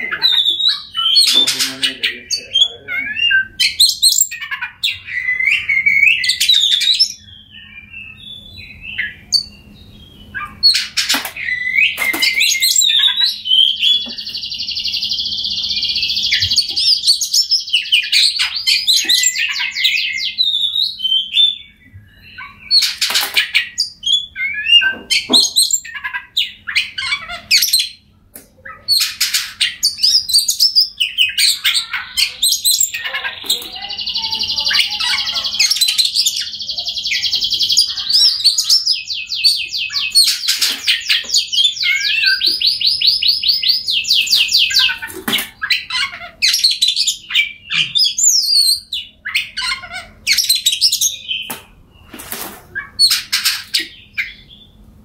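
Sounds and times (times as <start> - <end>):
bird singing whistled phrases: 0.0 - 10.8, 11.4 - 22.9, 29.8 - 45.0.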